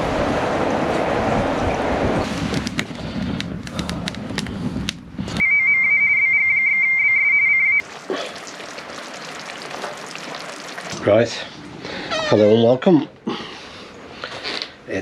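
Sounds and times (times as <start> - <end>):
radio high steady beep tone: 5.4 - 7.8.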